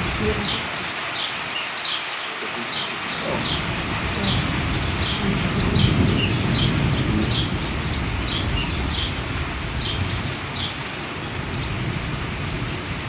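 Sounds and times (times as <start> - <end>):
rain hiss: 0.0 - 13.0
bird chirping: 0.4 - 11.8
thunder rumble: 3.2 - 13.0.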